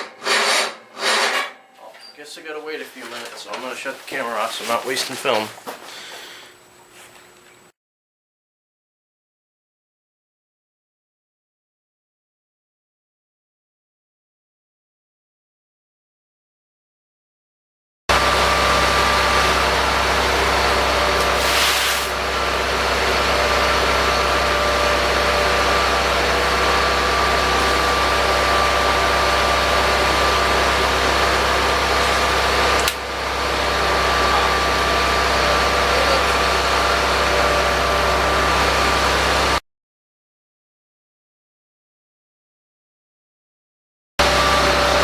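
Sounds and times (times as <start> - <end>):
tractor engine idling: 18.1 - 21.4, 22.1 - 39.6
steady whine: 18.1 - 39.6.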